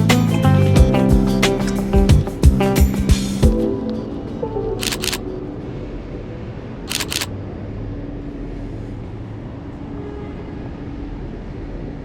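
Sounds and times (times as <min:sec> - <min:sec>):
city street traffic rumble: 0:00.0 - 0:12.0
camera shutter clicking: 0:04.8 - 0:05.2, 0:06.9 - 0:07.3.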